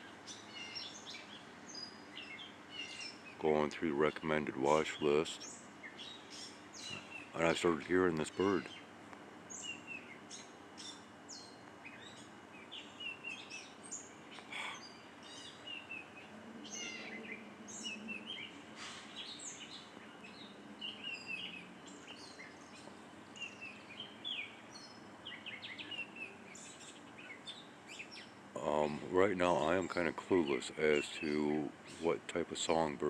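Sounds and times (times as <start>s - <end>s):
songbird chirps and whistles: 9.5s - 28.3s.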